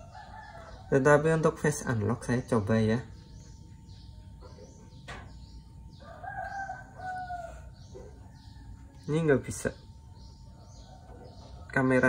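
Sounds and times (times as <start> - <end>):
bird calling: 3.1 - 12.0.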